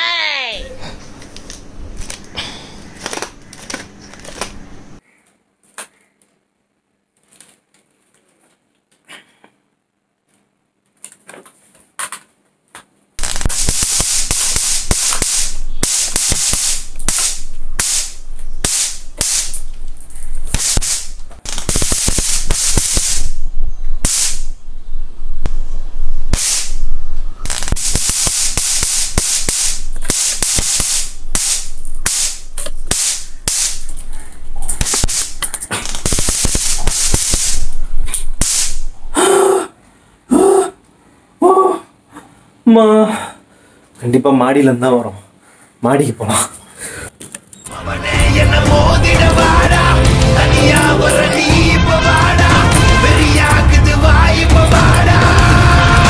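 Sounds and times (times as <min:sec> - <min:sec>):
rapid gunfire: 0:13.2 - 0:19.5, 0:20.5 - 0:23.3, 0:27.5 - 0:33.8, 0:34.8 - 0:37.6.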